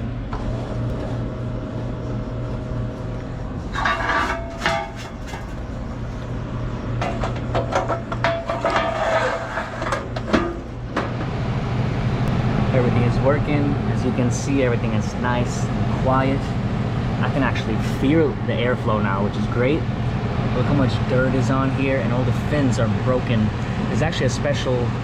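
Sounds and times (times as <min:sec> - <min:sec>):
condensing unit humming: 0:00.0 - 0:25.0
metal scraping and clattering: 0:03.6 - 0:05.8, 0:07.0 - 0:10.6.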